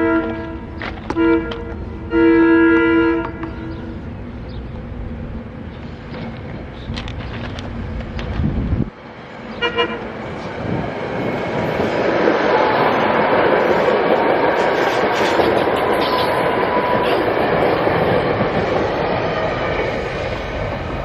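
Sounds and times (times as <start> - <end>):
train horn toot: 0.0 - 3.9, 9.5 - 10.2
train rumbling past: 0.0 - 21.0.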